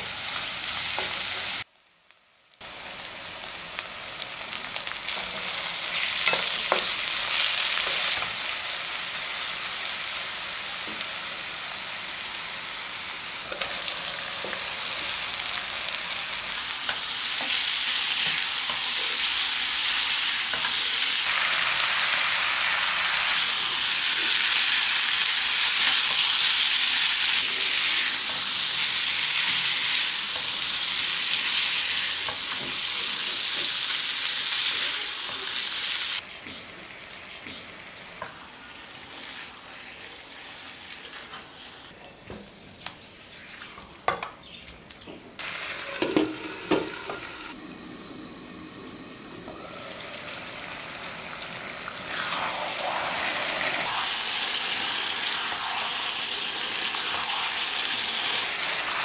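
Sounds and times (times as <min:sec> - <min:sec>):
chicken sizzling in hot oil: 0:00.0 - 0:36.2, 0:45.4 - 0:59.0.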